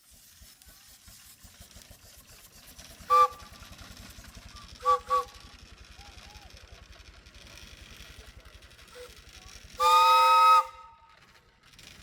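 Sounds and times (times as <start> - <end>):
tractor engine running: 0.1 - 12.0
horn toots: 9.8 - 11.0.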